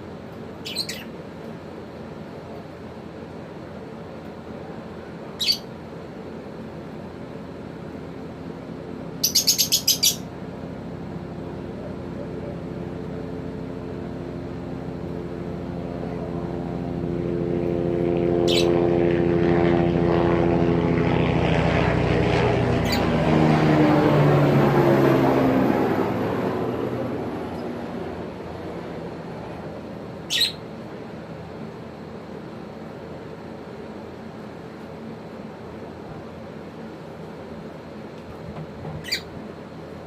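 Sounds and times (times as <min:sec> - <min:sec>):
propeller aircraft droning overhead: 0:00.0 - 0:40.0
high bird chirps: 0:00.6 - 0:01.1, 0:05.4 - 0:05.7, 0:09.2 - 0:10.2, 0:18.5 - 0:18.7, 0:30.3 - 0:30.6, 0:39.0 - 0:39.3.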